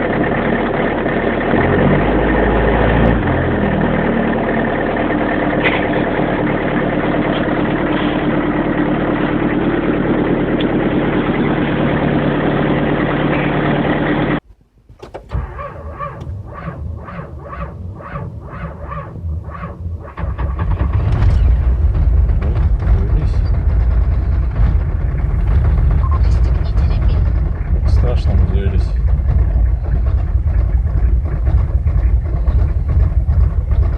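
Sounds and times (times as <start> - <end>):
diesel engine idling: 0.0 - 33.9
quiet even pulsing: 5.5 - 33.9.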